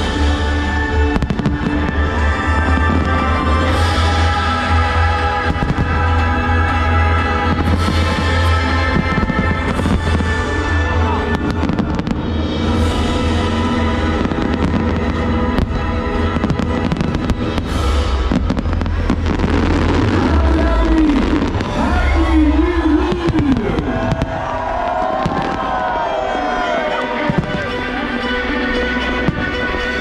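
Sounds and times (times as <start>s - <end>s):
fireworks bangs and crackles: 0.0s - 28.2s, 29.1s - 30.0s
loud music with deep bass: 0.0s - 30.0s.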